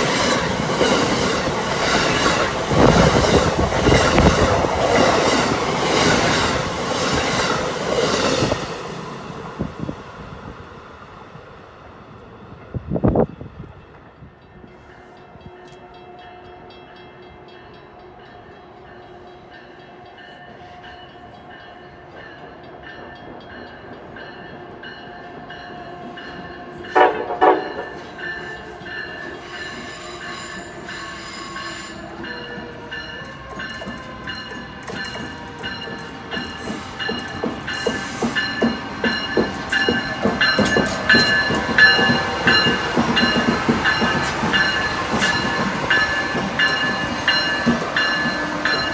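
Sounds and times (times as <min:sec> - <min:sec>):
train passing: 0:00.0 - 0:48.9
train horn: 0:14.7 - 0:21.3, 0:25.8 - 0:34.6.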